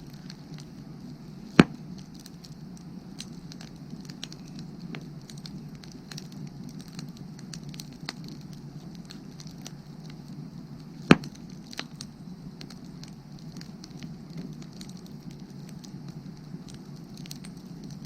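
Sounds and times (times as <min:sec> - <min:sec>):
firewood crackling: 0:00.0 - 0:18.0
loud sharp pop of fire: 0:01.5 - 0:02.1, 0:10.9 - 0:13.0.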